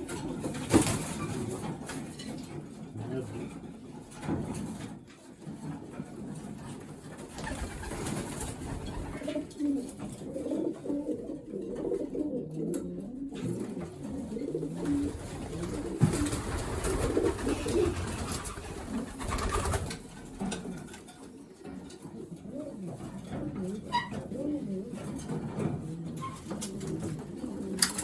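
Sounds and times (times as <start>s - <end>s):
pigeons cooing: 7.3s - 28.0s.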